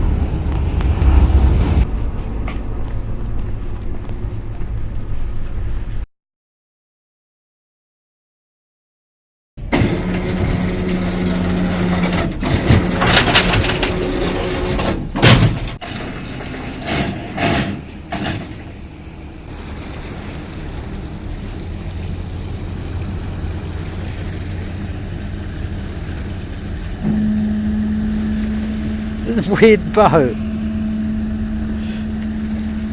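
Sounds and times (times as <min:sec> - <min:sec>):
loud clatters and knocks: 0:09.7 - 0:18.8
boat engine humming: 0:17.8 - 0:32.9
steady tone: 0:19.4 - 0:32.9.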